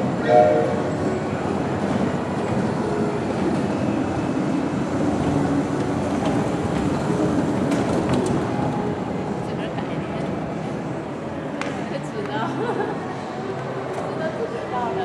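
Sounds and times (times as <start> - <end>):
small train rumbling on track: 0.0 - 15.0.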